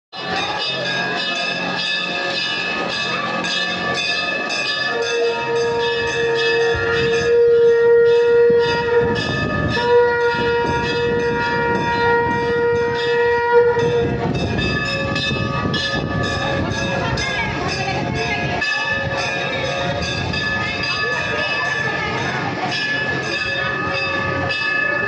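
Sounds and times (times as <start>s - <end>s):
temple bells ringing: 0.2s - 25.0s
long horn-like note: 4.9s - 14.5s.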